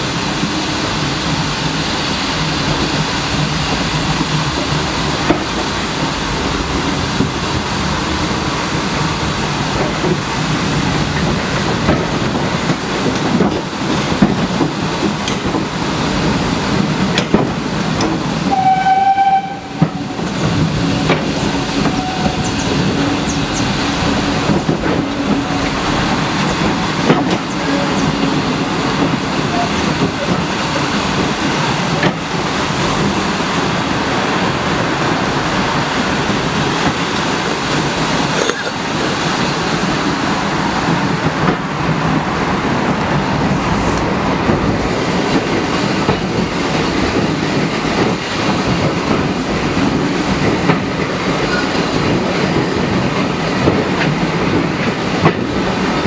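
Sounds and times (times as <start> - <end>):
train wheels rumbling on rails: 0.0 - 56.0
short high locomotive toot: 18.5 - 20.2, 21.7 - 23.7.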